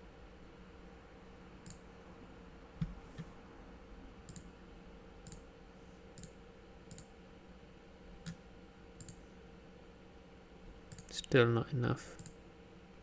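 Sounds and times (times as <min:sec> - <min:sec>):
low electrical hum: 0:00.0 - 0:13.0
computer mouse clicks: 0:01.6 - 0:01.8, 0:04.3 - 0:04.5, 0:05.2 - 0:05.5, 0:06.2 - 0:07.1, 0:09.0 - 0:09.2, 0:10.9 - 0:11.2, 0:12.2 - 0:12.4.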